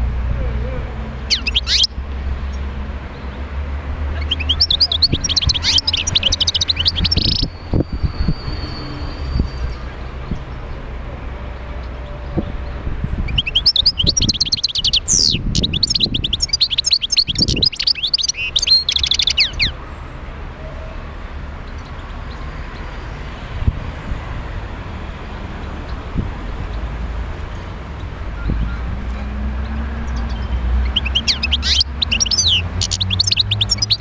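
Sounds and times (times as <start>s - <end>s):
finch twittering song: 1.2s - 3.4s, 4.1s - 10.8s, 11.8s - 19.8s, 29.6s - 34.0s.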